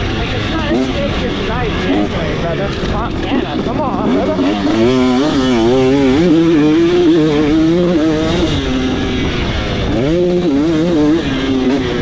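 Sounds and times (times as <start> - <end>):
two-stroke motorcycle engine revving: 0.0 - 12.0.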